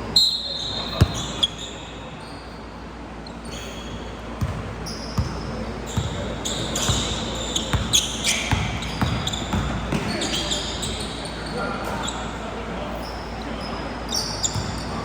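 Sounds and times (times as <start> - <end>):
sneaker squeaks: 0.1 - 15.0
basketball bouncing on gym floor: 0.9 - 1.4, 4.4 - 10.2.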